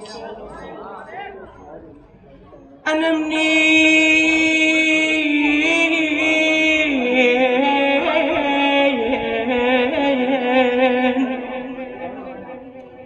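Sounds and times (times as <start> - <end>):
solo voice singing: 2.8 - 13.0.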